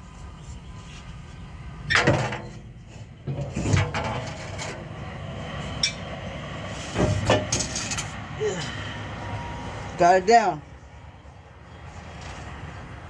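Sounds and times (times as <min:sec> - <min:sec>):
metal clunks and scraping: 0:00.4 - 0:08.2
loud metal knocks: 0:01.9 - 0:04.9.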